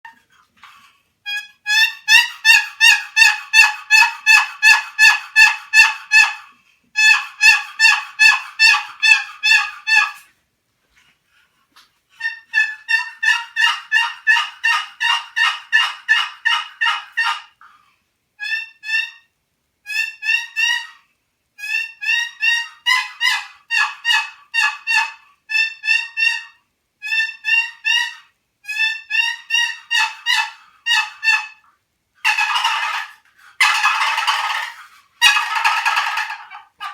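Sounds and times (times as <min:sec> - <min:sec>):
box turkey call notes: 0:01.3 - 0:06.4, 0:07.0 - 0:10.3, 0:12.2 - 0:17.6, 0:21.6 - 0:36.9
turkey call lid strokes: 0:07.0 - 0:10.3, 0:21.6 - 0:36.9.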